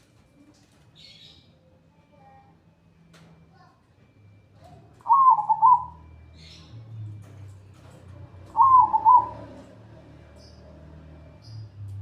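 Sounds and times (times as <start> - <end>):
zebra dove cooing: 5.1 - 6.1, 8.5 - 9.7.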